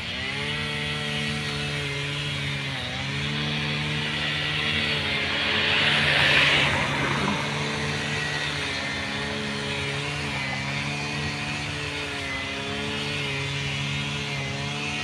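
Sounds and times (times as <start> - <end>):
droning hum: 1.3 - 14.2
freight train rumbling past: 3.9 - 9.9.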